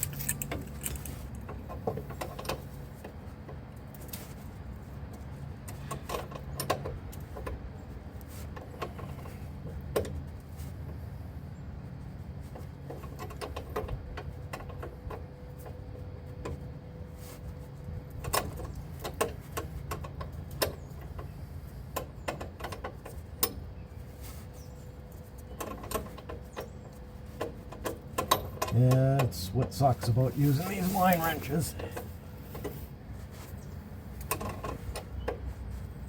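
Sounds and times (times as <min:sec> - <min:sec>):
steady low hum: 0:23.0 - 0:36.0.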